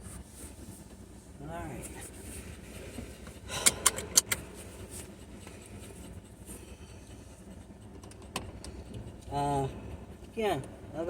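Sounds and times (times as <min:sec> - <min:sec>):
low steady rumble: 0:00.0 - 0:11.0
sharp clicks and clatters: 0:07.9 - 0:09.0.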